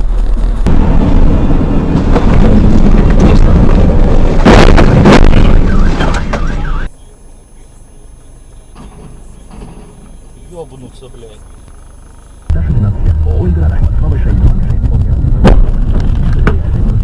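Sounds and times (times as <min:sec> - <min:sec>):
vehicle and road noise: 0:00.0 - 0:17.0
heavy impact bangs: 0:00.6 - 0:06.6, 0:12.5 - 0:17.0.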